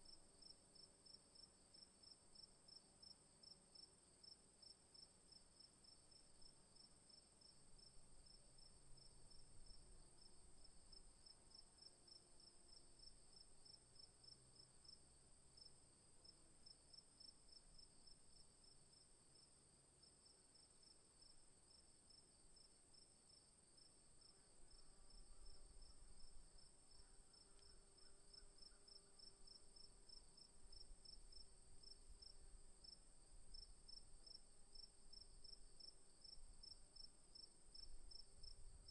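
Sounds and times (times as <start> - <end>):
crickets chirping: 20.5 - 38.9.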